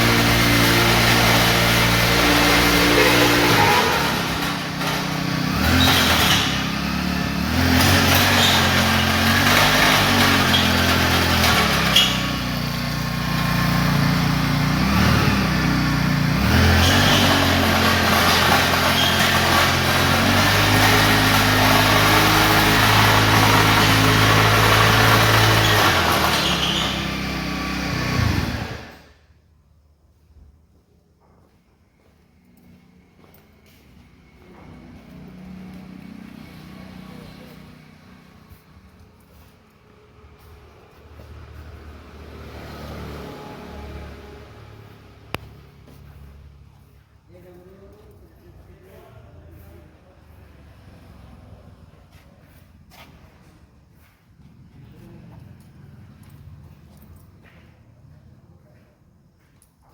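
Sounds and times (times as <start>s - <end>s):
power tiller engine running: 0.0s - 29.2s.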